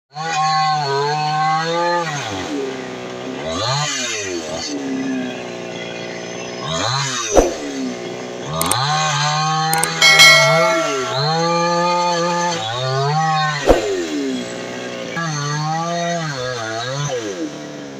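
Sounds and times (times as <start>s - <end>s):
clicks: 9.8s - 11.5s.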